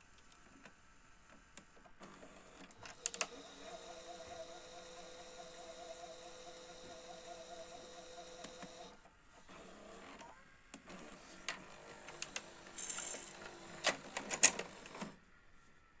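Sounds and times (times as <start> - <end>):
tape mechanism whirring: 2.7 - 9.6, 10.9 - 15.2.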